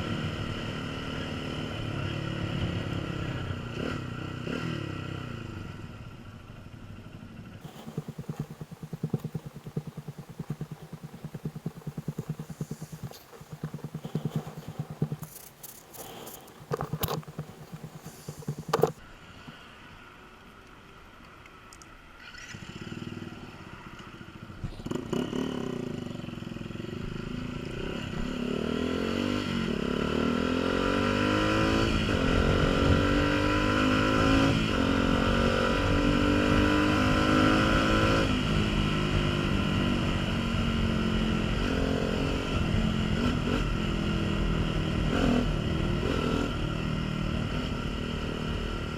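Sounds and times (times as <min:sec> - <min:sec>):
motorcycle engine accelerating: 0:00.0 - 0:19.0, 0:24.2 - 0:48.9
clicks and clatter: 0:07.6 - 0:19.0.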